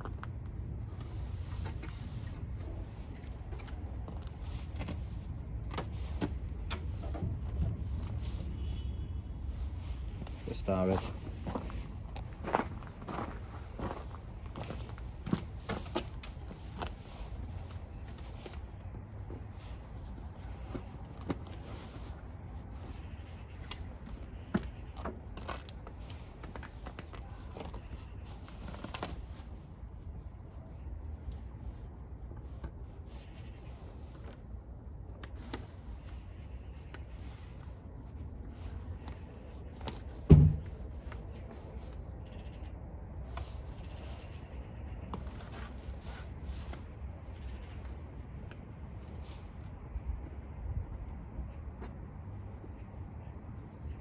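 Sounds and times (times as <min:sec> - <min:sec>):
light clicks and knocks: 0:39.8 - 0:41.3
sharp knock: 0:40.3 - 0:40.7.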